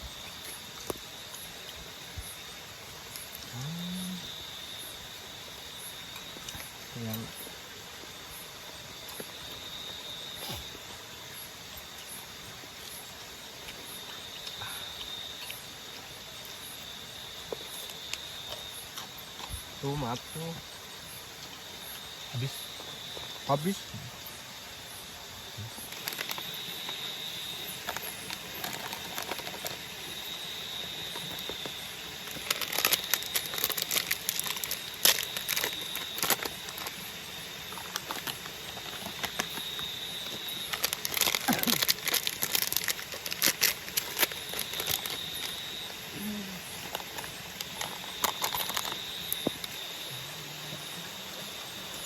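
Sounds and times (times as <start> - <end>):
nocturnal forest insects chorus: 0.0 - 52.0
plastic crinkling and rustling: 25.8 - 27.1, 27.7 - 30.0, 31.1 - 37.0, 37.7 - 45.9, 46.8 - 49.7.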